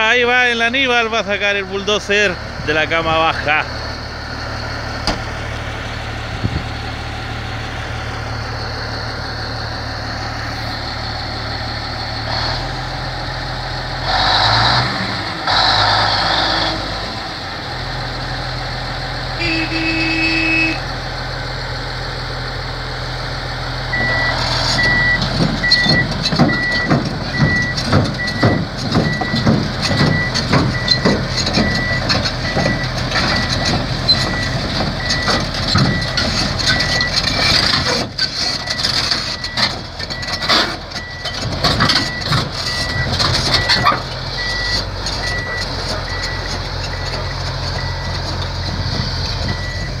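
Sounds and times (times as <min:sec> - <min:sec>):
bulldozer diesel engine running: 0:00.0 - 0:50.0
backup alarm beeping: 0:23.9 - 0:33.5, 0:42.1 - 0:47.2
steel tracks clanking: 0:24.0 - 0:50.0.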